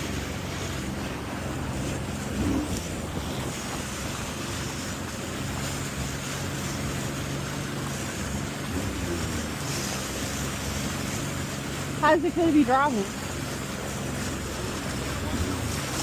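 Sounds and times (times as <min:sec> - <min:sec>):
wind buffeting microphone: 0:00.0 - 0:09.4
jet ski engine running: 0:00.0 - 0:16.0
water rushing past hull: 0:00.0 - 0:16.0.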